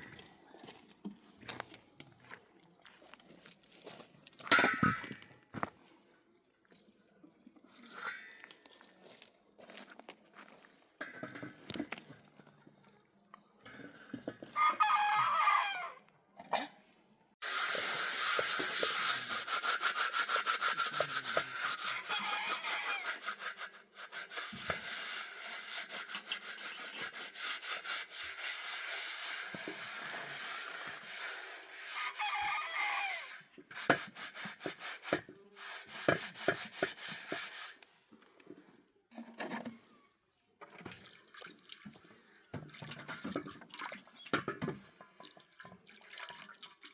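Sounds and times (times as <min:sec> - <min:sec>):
rooster crowing: 0:14.6 - 0:16.0, 0:32.0 - 0:33.3
rubbing or scraping strokes: 0:17.4 - 0:37.8.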